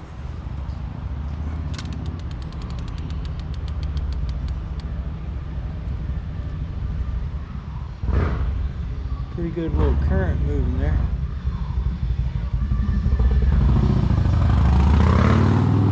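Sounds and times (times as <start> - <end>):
steady low rumble: 0.0 - 14.8
rush of noise: 1.7 - 15.9
fishing reel clicking: 1.8 - 4.9.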